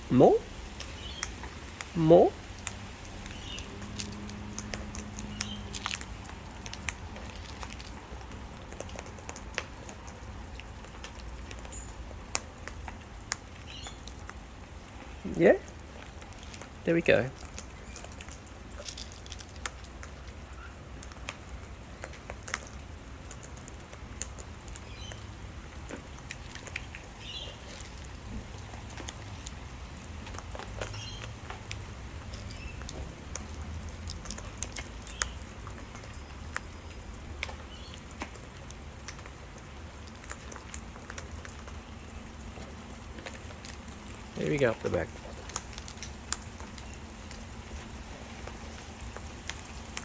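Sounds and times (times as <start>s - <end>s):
beaks cracking seed: 2.5s - 14.4s.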